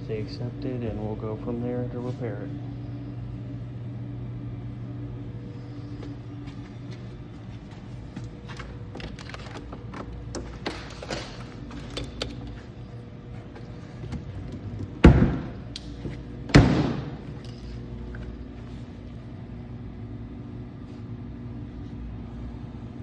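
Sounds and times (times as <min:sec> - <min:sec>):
low hum: 0:00.0 - 0:23.0
door slamming: 0:14.1 - 0:15.6, 0:16.5 - 0:17.4.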